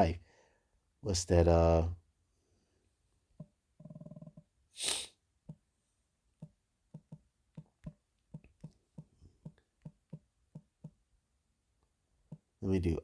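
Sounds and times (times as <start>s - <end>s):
quick breath: 4.8s - 5.2s
keyboard keys tapping: 6.4s - 11.0s.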